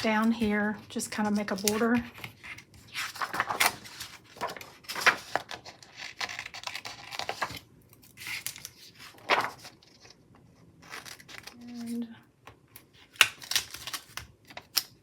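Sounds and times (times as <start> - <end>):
paper crinkly rustles: 0.0 - 7.6, 8.2 - 10.2
paper peeling: 1.3 - 7.6, 8.2 - 9.8.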